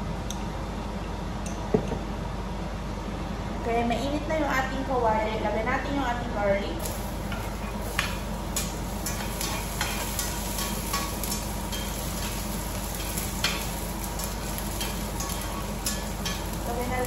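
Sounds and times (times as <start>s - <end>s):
garlic sizzling in oil: 6.8s - 17.0s.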